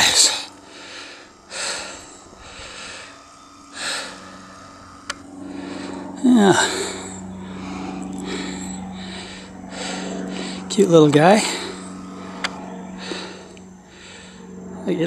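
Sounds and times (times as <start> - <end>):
man breathing hard: 0.0 - 14.8.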